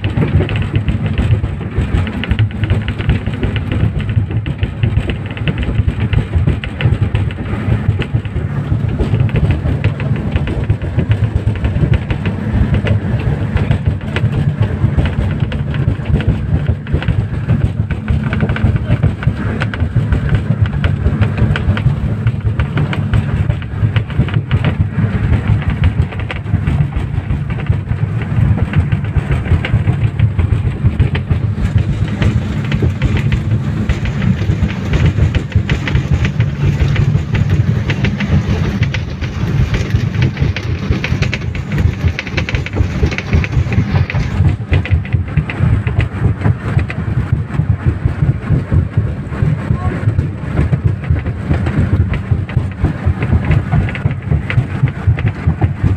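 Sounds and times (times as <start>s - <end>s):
hull knocking on water: 0.0s - 55.9s
speedboat engines running: 0.0s - 55.9s.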